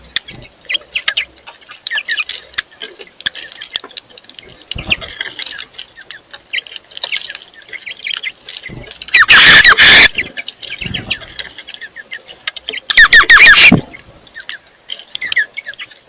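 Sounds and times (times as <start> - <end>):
birds chirping: 0.0 - 16.0
bird squawking harshly: 9.1 - 11.2, 12.9 - 14.0.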